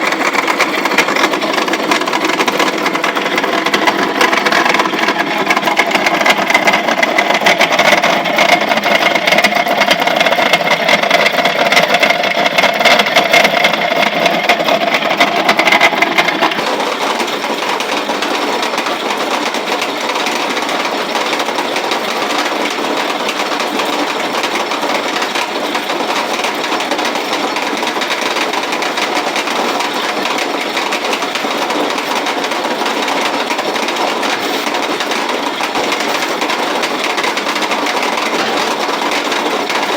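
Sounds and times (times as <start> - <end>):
roller mill clattering: 0.0 - 39.9.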